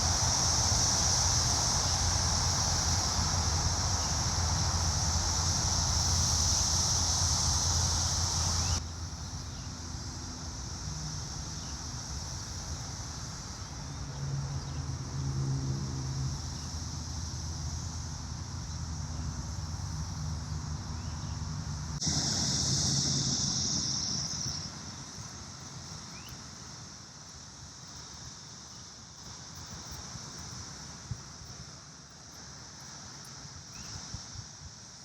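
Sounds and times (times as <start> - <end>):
low vehicle hum: 0.0 - 26.3
cicadas buzzing: 0.0 - 35.0.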